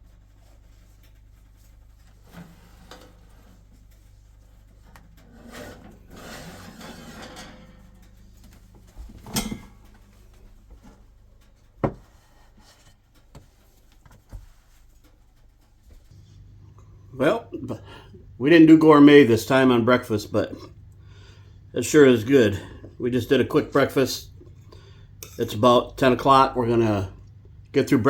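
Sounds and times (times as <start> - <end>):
scraping rub: 0.0 - 9.1.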